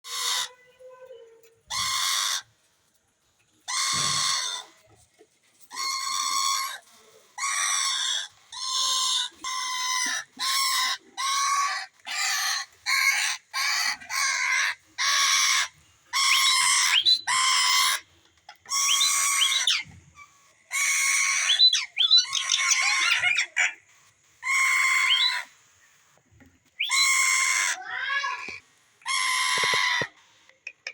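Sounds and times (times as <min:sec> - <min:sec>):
parakeets screeching: 0:00.0 - 0:00.6, 0:03.7 - 0:04.6, 0:07.4 - 0:18.0, 0:18.7 - 0:19.9, 0:20.7 - 0:23.8, 0:24.4 - 0:25.5, 0:26.8 - 0:30.1.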